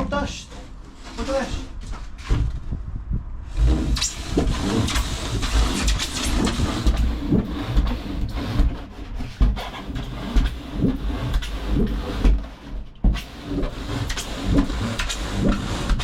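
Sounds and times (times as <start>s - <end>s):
saw cutting insulation board: 0.0s - 2.4s, 3.5s - 16.0s
low rumble: 0.0s - 15.9s.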